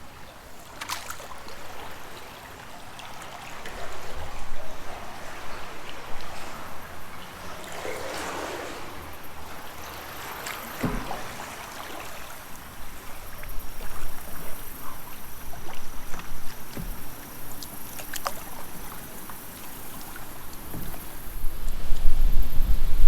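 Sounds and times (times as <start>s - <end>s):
flowing water: 0.0s - 23.0s
paddle splashing water: 0.0s - 23.0s
light knocks: 10.4s - 12.1s, 16.1s - 18.4s.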